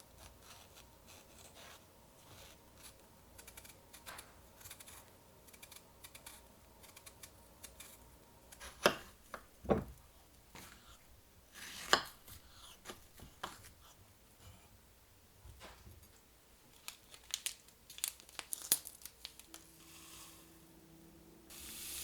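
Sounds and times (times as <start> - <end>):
paper crinkling and tearing: 16.8 - 19.7.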